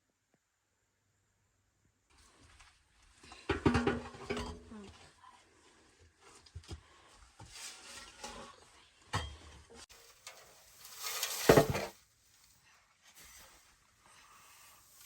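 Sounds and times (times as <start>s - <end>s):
metal pots and pans clinking: 3.5s - 4.7s, 9.1s - 11.9s.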